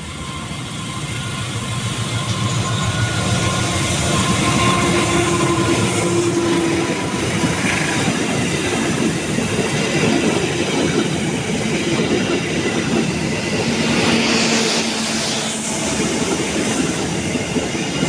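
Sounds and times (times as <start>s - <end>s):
locomotive engine hum: 0.0s - 18.0s
train wheels rumbling and clattering: 0.0s - 18.0s.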